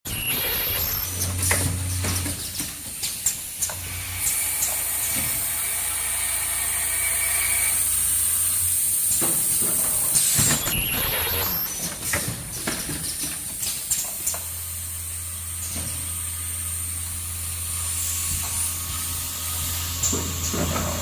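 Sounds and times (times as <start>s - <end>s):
high-pitched machine hiss: 2.9s - 11.9s.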